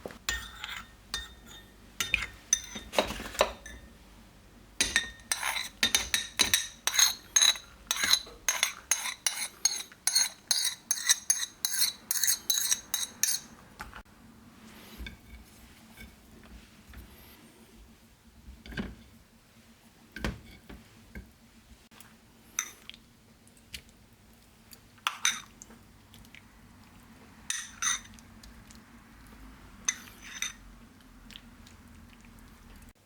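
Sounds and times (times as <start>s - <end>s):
metal utensil clinking against dish: 4.8s - 13.5s.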